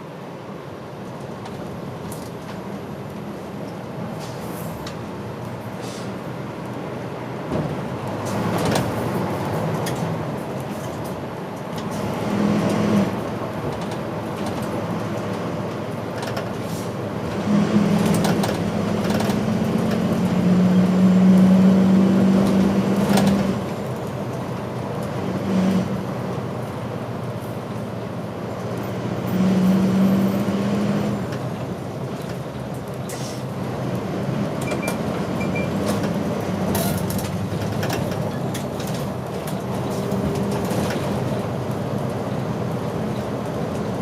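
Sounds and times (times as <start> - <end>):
diesel bus engine drone: 0.0 - 44.0
road noise: 0.0 - 44.0
faint clicks inside bus: 1.0 - 6.8, 9.7 - 12.0, 13.5 - 16.7, 18.0 - 20.2, 31.3 - 34.0, 34.6 - 44.0.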